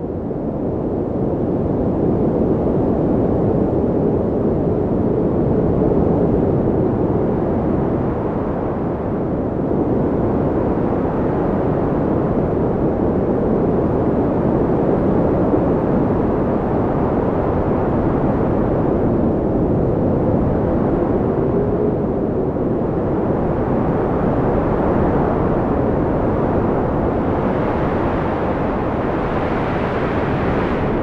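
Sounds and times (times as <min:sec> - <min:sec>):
faint wind whistling: 0:06.2 - 0:31.0
wind blowing: 0:16.0 - 0:31.0.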